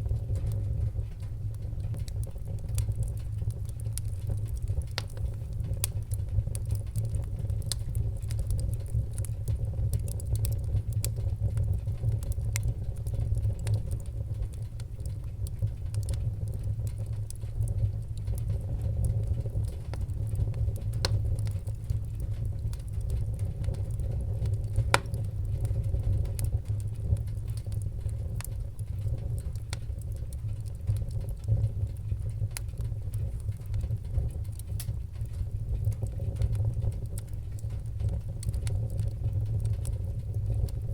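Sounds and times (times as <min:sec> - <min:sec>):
fire crackling and popping: 0:00.0 - 0:40.9
fire flames rumbling: 0:00.0 - 0:40.9.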